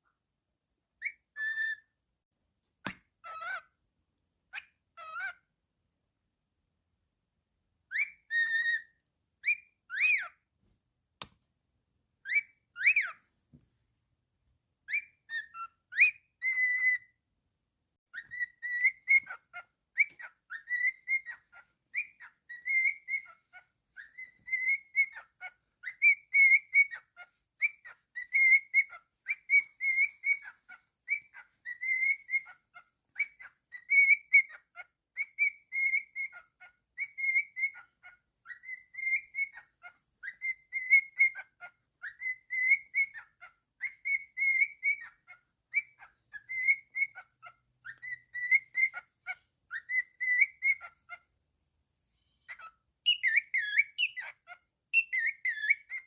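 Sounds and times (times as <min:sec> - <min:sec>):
cockatiel whistling a tune: 0:01.0 - 0:02.0, 0:03.2 - 0:03.7, 0:04.5 - 0:05.4, 0:07.8 - 0:10.5, 0:12.2 - 0:13.2, 0:14.8 - 0:17.2, 0:18.1 - 0:51.2, 0:52.4 - 0:56.0.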